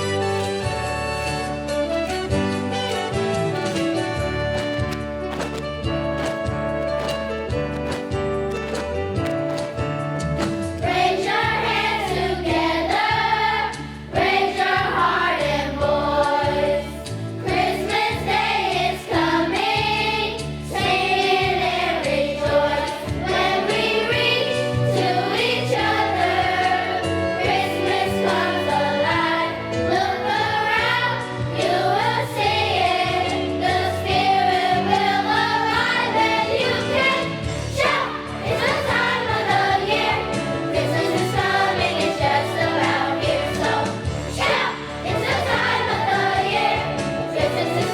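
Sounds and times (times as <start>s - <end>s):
instrumental accompaniment: 0.0s - 47.9s
choir singing: 10.8s - 47.9s.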